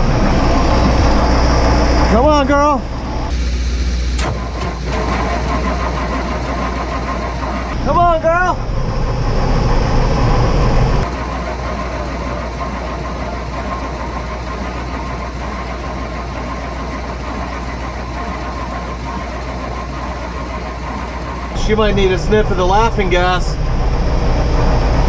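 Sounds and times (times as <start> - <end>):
low engine rumble: 3.0 - 24.7
diesel starter cranking: 3.3 - 7.9, 11.0 - 21.9
starter whine: 3.3 - 8.4, 10.3 - 23.5.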